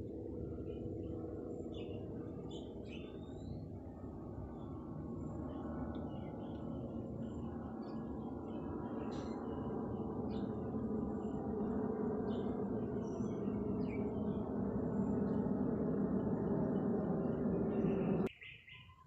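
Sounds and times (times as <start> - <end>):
steady rushing noise: 0.0 - 18.3
faint bird chirps: 4.4 - 19.0.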